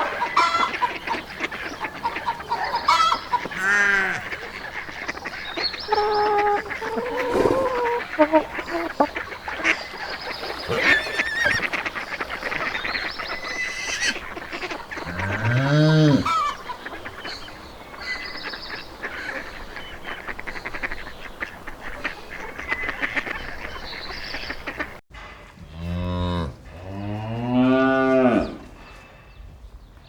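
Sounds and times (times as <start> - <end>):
repeated honking calls: 0.0 - 9.3, 10.6 - 12.7
cow mooing: 10.7 - 11.6, 15.1 - 16.4, 25.7 - 28.6.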